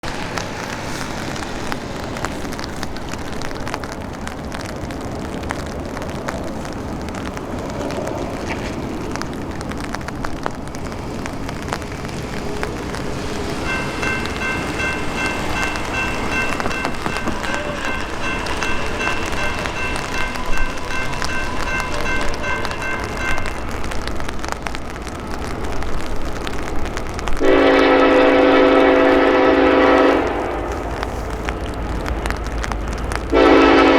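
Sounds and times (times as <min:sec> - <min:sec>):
outdoor rushing and rumbling: 0:00.0 - 0:33.9
crossing warning bell ringing: 0:12.8 - 0:25.2.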